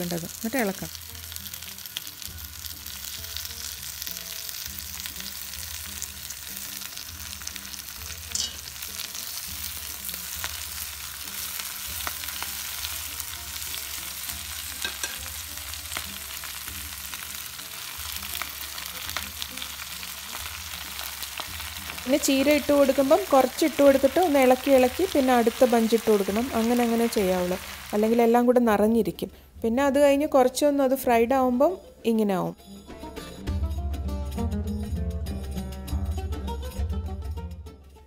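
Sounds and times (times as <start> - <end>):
spinach sizzling in oil: 0.0 - 28.6.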